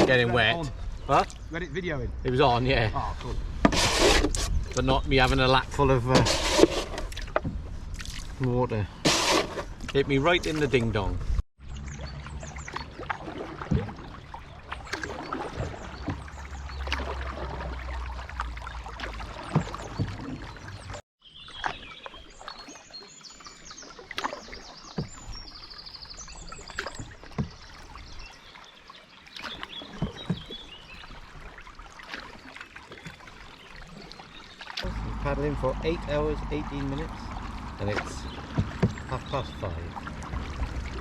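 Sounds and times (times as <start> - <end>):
paddle splashing in water: 0.0 - 1.4, 3.0 - 41.0
birds chirping: 0.0 - 3.4, 14.2 - 31.3, 32.9 - 41.0
paddle knocking against canoe: 12.8 - 18.2, 18.9 - 20.8, 24.2 - 25.5, 26.7 - 28.1, 29.4 - 31.4, 34.8 - 41.0
low wind rumble: 34.8 - 41.0.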